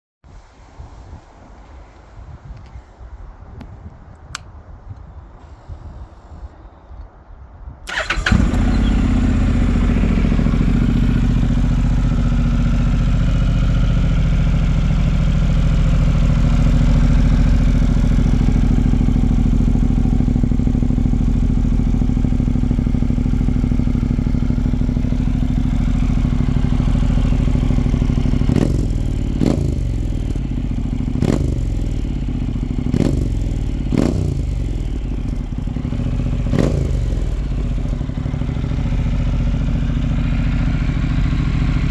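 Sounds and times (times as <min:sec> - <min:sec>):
motorcycle engine starting and idling: 0:07.8 - 0:41.9.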